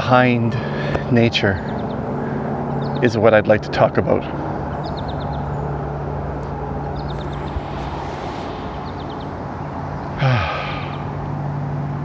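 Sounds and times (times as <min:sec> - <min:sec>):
distant traffic hum: 0:00.0 - 0:12.0
bird chirps: 0:06.8 - 0:11.4
brief falling sigh: 0:07.1 - 0:11.2.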